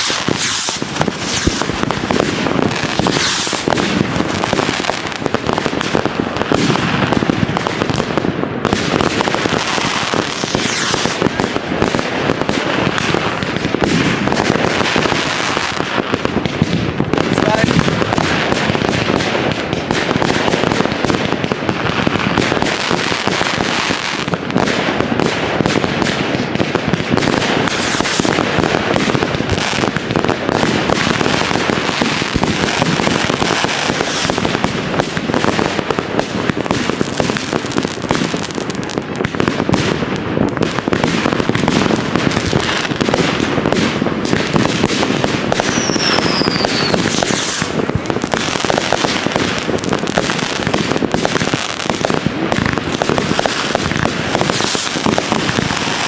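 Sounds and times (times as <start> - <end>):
falling firework whistle: 0.0 - 3.8, 9.6 - 11.3, 33.6 - 34.4, 45.5 - 47.8
fireworks bangs and crackling: 0.0 - 56.0.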